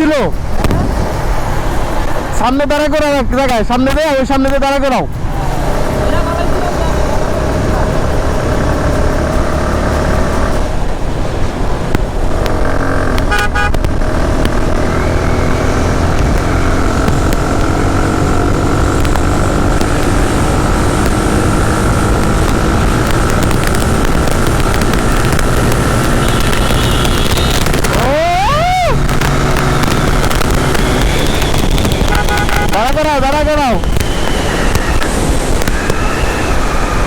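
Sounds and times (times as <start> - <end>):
motorcycle engine: 0.0 - 37.0
wind rush on microphone: 0.0 - 37.0
vehicle horn toot: 13.3 - 13.8, 26.1 - 27.9, 30.1 - 36.4.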